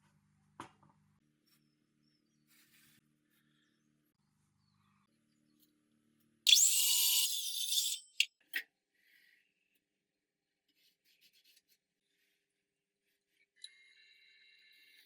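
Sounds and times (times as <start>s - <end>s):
saw cutting through wood: 6.5s - 8.2s.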